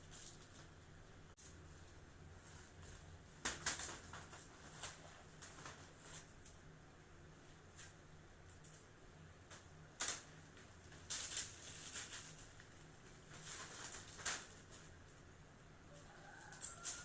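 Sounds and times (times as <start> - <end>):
faint steady hum: 0.0 - 17.0
plastic sheeting crinkling: 1.4 - 6.5, 10.0 - 15.1.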